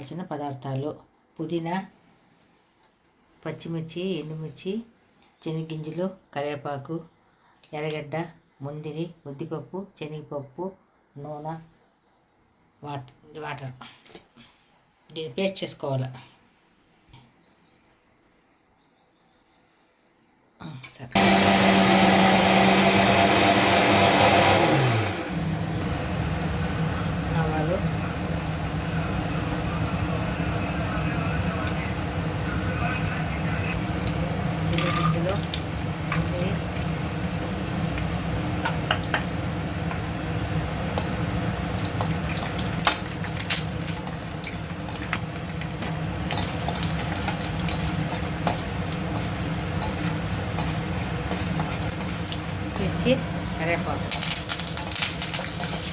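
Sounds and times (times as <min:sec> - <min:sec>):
mixer grinder running: 0:21.2 - 0:32.4, 0:33.8 - 0:55.9
seeds and nuts sizzling in oil: 0:34.0 - 0:55.9.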